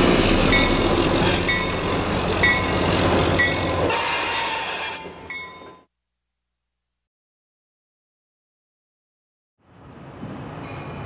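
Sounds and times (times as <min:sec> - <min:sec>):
diesel locomotive passing: 0:00.0 - 0:05.9, 0:09.6 - 0:11.0.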